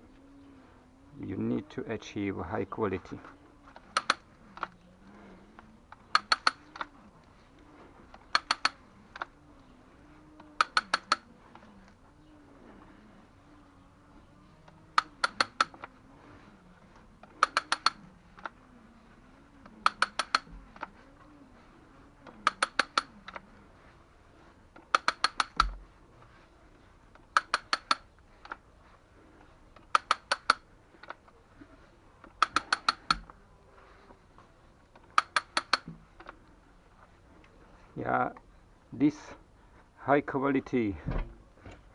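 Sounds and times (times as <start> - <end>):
ratchet handle clicking: 6.0 - 6.9, 8.1 - 9.3, 10.5 - 11.3, 14.7 - 15.9, 17.2 - 18.5, 19.6 - 20.9, 22.2 - 23.4, 24.8 - 25.8, 27.2 - 28.6, 29.8 - 31.2, 32.2 - 33.3, 35.0 - 36.3.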